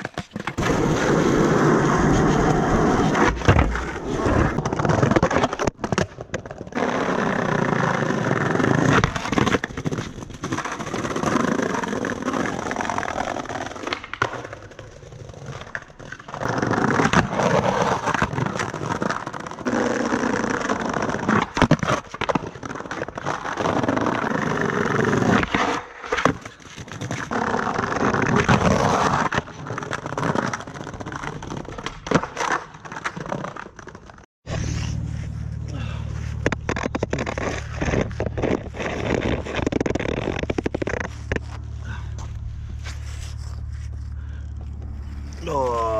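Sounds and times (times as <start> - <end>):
skateboard clacks: 0.0 - 34.2
skateboard wheels rolling: 0.0 - 45.8.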